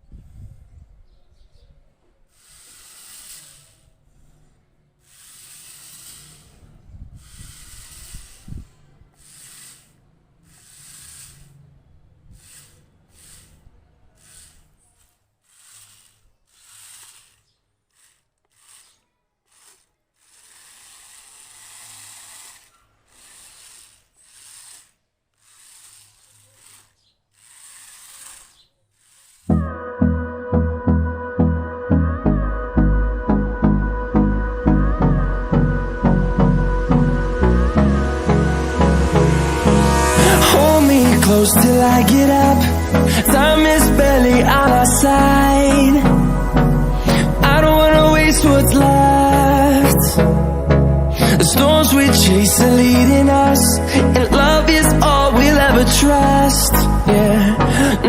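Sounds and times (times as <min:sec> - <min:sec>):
electric motors whirring: 0:02.3 - 0:29.7, 0:35.6 - 0:53.4.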